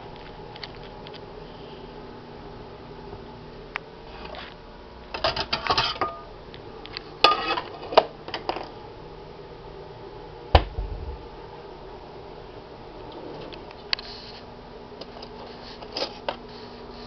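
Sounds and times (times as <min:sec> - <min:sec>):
clicks and rattles at a microwave: 0:05.1 - 0:06.2
hard knock with low thump: 0:10.6 - 0:11.2.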